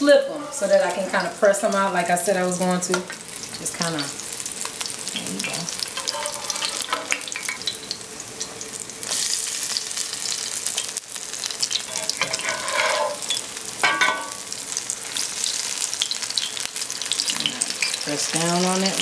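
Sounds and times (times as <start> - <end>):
metal spatula scraping pan: 0.0 - 1.2, 5.9 - 7.6, 11.8 - 14.4
fritters sizzling in hot oil: 0.0 - 19.0.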